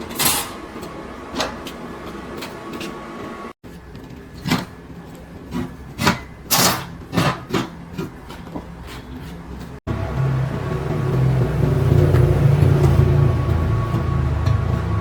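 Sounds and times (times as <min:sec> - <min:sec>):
scraping on hard surface: 0:04.4 - 0:09.8.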